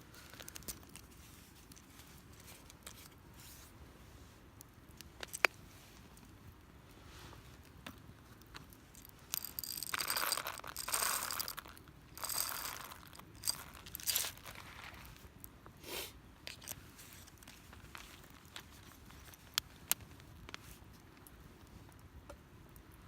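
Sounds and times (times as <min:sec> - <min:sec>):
crunching and rustling: 0:07.5 - 0:15.3, 0:16.5 - 0:22.0.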